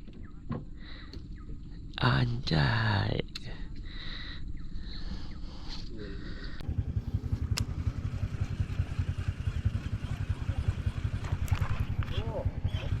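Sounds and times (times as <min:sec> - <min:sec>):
boat engine pulsing: 0:06.2 - 0:13.0.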